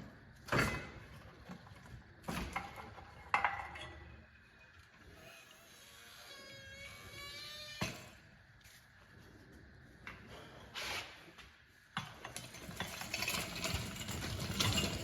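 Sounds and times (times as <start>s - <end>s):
metal clicking and rattling: 12.1s - 15.0s.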